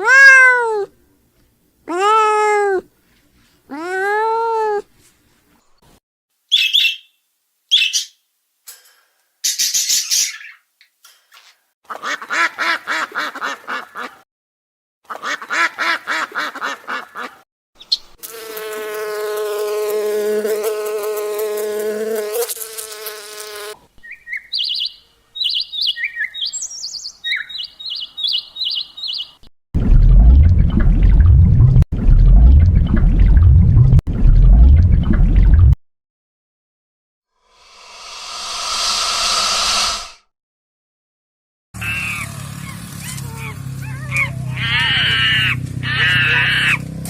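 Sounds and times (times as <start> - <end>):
loud low rumbling: 29.8 - 35.8.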